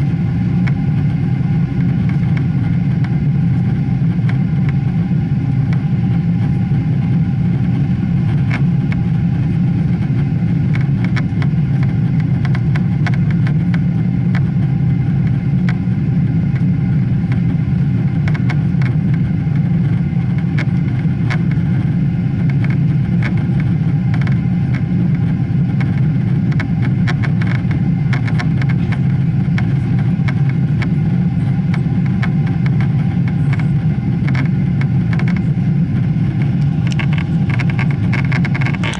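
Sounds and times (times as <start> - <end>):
aircraft cabin engine rumble: 0.0 - 38.9
constant hum: 0.0 - 38.9
light clicks and rattles: 22.4 - 30.9, 36.3 - 38.9.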